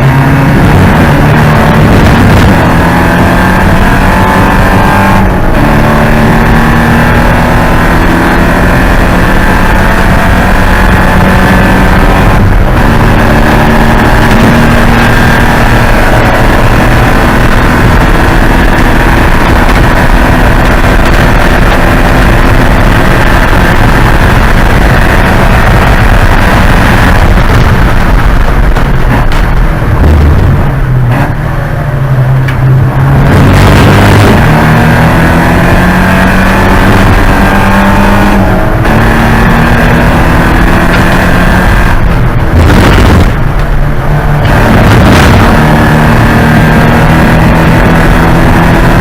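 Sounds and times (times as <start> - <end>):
race car engine revving: 0.0 - 49.0.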